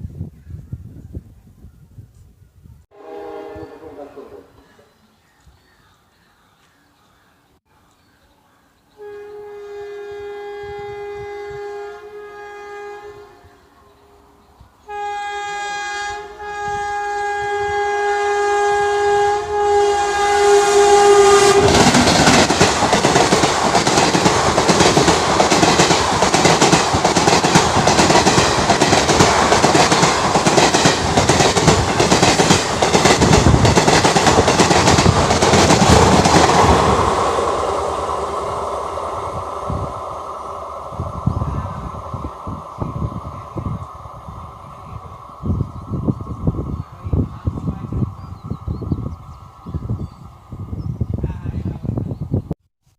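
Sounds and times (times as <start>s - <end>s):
train horn blasts: 2.9s - 4.3s, 9.0s - 14.2s, 14.8s - 22.0s
train wheels clacking over rail joints: 21.6s - 36.6s.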